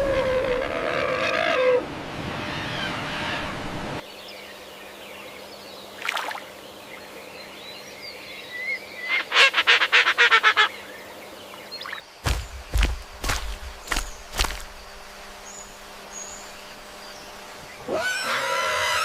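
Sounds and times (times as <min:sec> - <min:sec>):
animal calling harshly: 0:17.9 - 0:19.0.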